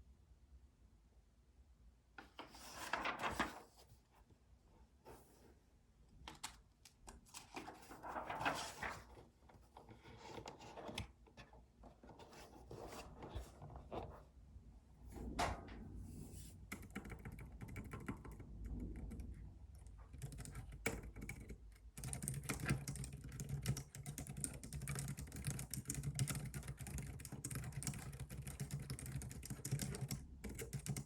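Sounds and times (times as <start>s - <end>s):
paper rustling and scraping: 2.2s - 4.0s, 7.3s - 11.1s, 12.1s - 14.2s.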